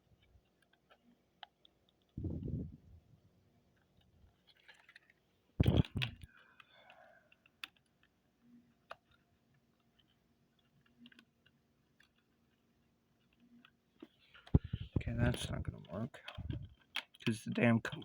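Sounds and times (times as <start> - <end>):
plastic model train cars clicking: 3.8 - 14.5, 15.1 - 18.0.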